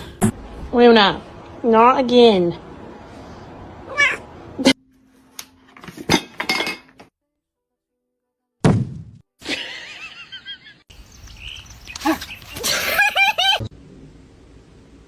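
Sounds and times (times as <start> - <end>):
cat meowing: 3.9 - 4.2
knocks and clinks of hard objects: 5.7 - 7.1.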